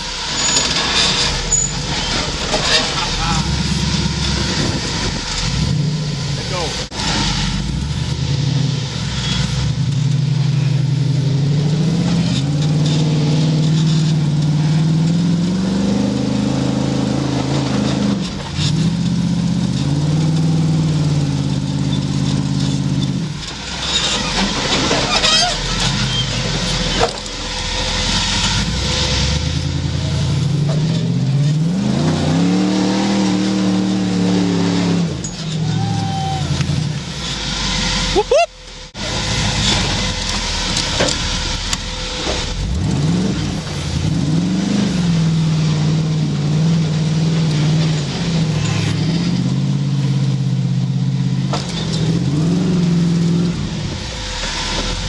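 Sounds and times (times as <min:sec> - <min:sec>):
off-road vehicle engine revving: 0:00.0 - 0:55.0.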